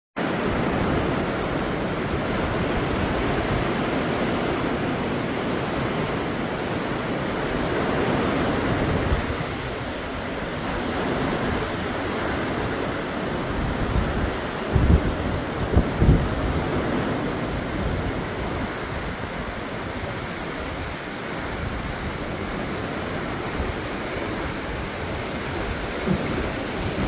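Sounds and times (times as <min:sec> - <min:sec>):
storm wind rushing: 0:00.2 - 0:27.0
storm-driven sea: 0:00.2 - 0:27.0.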